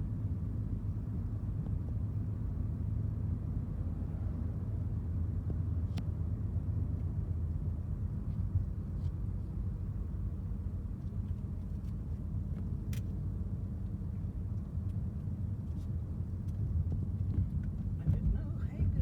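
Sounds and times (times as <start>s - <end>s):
car driving from inside cabin: 0.5s - 19.0s.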